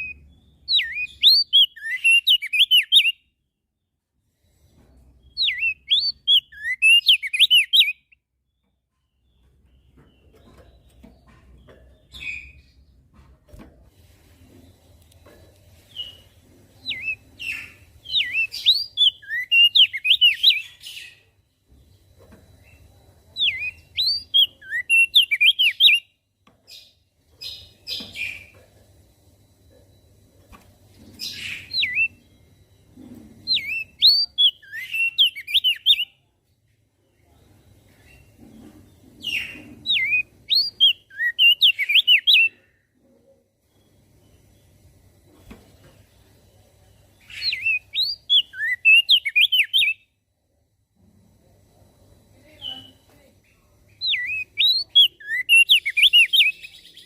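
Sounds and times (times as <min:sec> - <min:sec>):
bird singing whistled notes: 0:00.0 - 0:03.3, 0:05.3 - 0:08.6, 0:16.8 - 0:21.2, 0:23.4 - 0:26.2, 0:31.2 - 0:32.3, 0:33.5 - 0:36.3, 0:39.3 - 0:42.6, 0:47.2 - 0:50.1, 0:52.4 - 0:53.0, 0:54.0 - 0:57.0.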